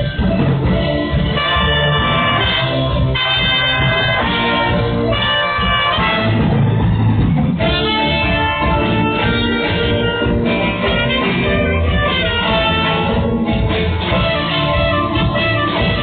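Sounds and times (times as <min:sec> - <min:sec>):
guitar: 0:00.0 - 0:16.0
live band playing: 0:00.0 - 0:16.0.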